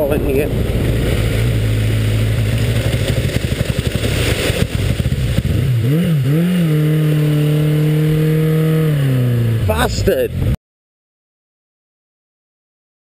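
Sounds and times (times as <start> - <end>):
wind buffeting microphone: 0.0 - 9.6
motorcycle engine revving: 0.1 - 10.6.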